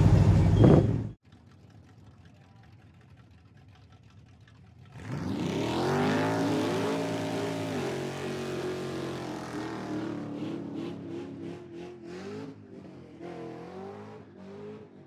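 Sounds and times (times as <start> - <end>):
car engine revving: 4.9 - 15.0.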